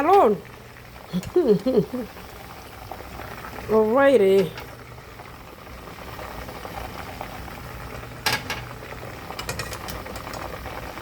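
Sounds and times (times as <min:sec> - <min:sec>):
oil bubbling and crackling: 0:00.0 - 0:11.0.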